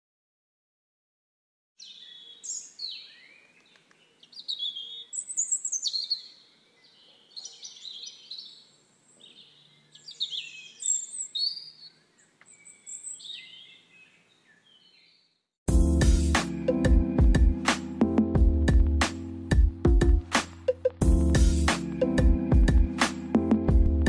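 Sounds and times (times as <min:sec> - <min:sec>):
songbirds singing: 0:01.8 - 0:15.5.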